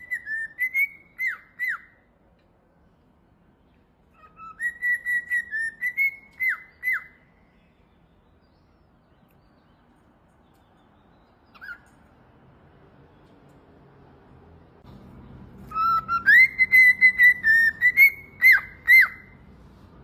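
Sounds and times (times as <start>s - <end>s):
bird whistled call: 0.0s - 2.0s, 4.2s - 7.2s, 15.7s - 19.4s.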